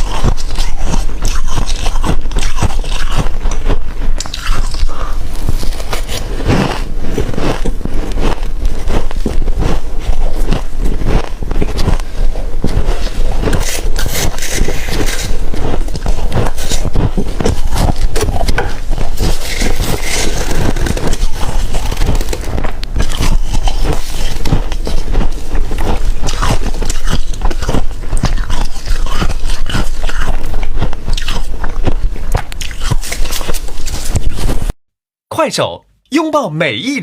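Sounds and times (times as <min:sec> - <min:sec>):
frost crunching and chewing: 0:00.0 - 0:34.7.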